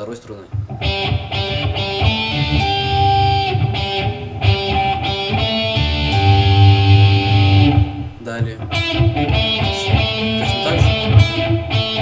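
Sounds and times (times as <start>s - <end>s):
electric guitar melody: 0.4s - 12.0s.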